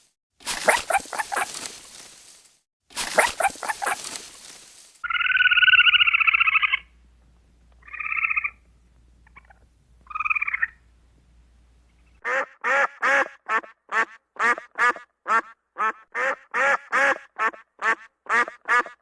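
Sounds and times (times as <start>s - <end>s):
fast repeated short animal calls: 0.5s - 2.3s, 3.0s - 7.0s, 7.8s - 10.9s, 12.1s - 19.0s
long buzzy animal call: 5.1s - 6.9s.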